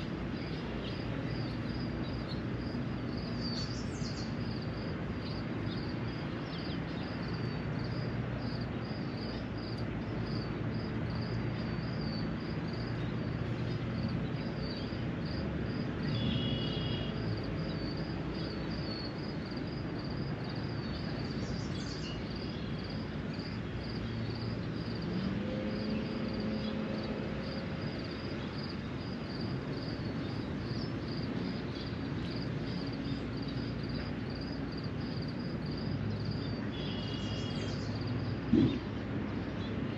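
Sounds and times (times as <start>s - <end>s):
bird calls: 36.8s - 39.0s.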